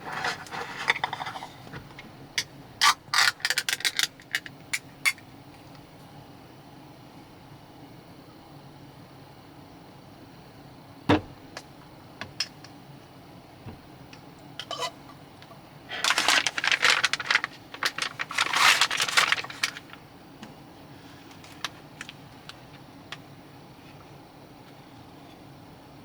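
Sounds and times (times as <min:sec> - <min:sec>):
objects rattling: 0:14.6 - 0:20.0
small hard objects clattering: 0:15.9 - 0:20.0.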